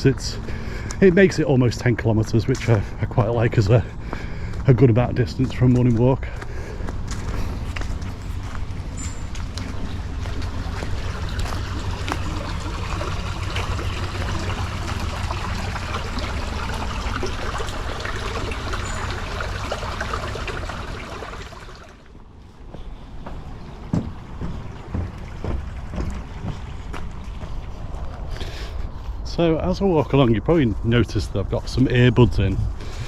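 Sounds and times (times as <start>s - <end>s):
steady rushing outdoor noise: 0.0s - 19.0s, 19.8s - 33.0s
wind rumbling on microphone: 23.0s - 33.0s.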